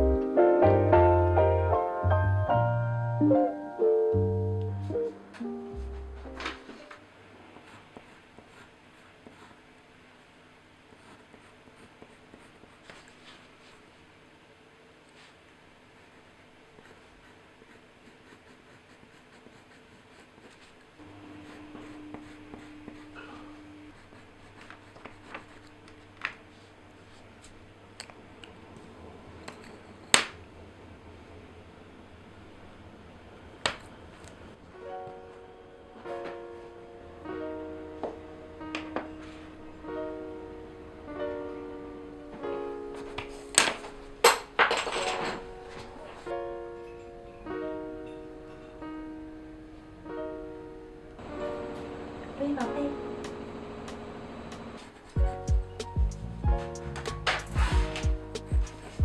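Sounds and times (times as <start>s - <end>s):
tool scratching on paper: 16.8s - 26.0s, 57.4s - 59.0s
scissors snipping paper: 57.0s - 58.0s.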